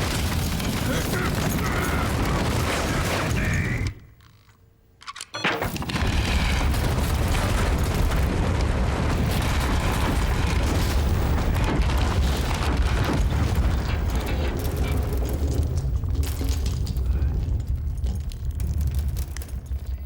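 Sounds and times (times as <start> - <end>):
heavy rumbling with crashing: 0.0 - 4.0, 5.6 - 20.0.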